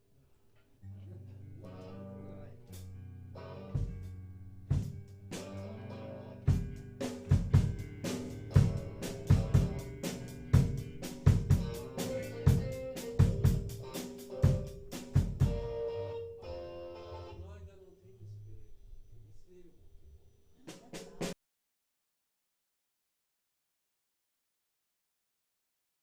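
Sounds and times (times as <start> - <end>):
band playing: 3.4 - 17.4.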